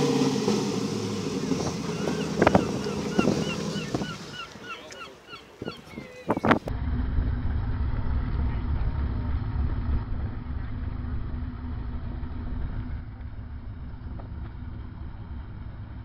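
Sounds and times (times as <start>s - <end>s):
car engine idling: 0.0s - 4.7s, 6.7s - 16.0s.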